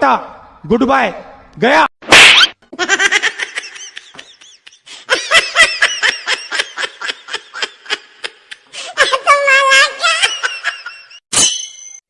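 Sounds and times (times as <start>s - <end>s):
high-pitched laughter: 2.1s - 11.2s.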